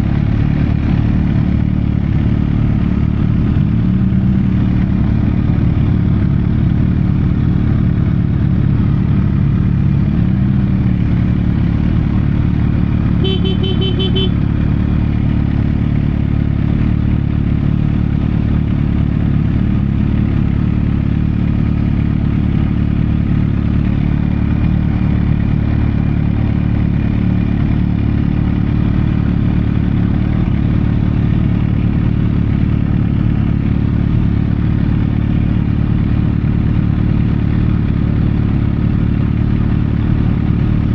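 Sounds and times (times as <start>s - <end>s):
motorcycle engine running: 0.0s - 40.9s
short beeps: 13.2s - 14.3s.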